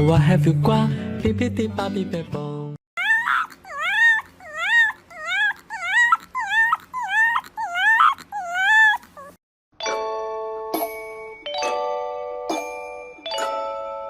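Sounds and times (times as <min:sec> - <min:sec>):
young pet crying: 0:03.0 - 0:09.4.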